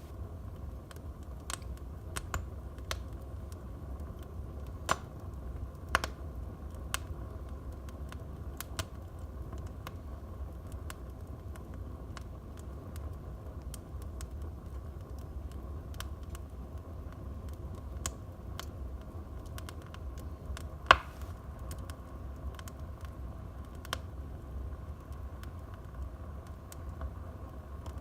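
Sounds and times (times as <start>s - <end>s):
low rumble of flames: 0.0s - 28.0s
wood fire crackling: 0.0s - 28.0s
loud sharp fire pop: 20.9s - 21.3s.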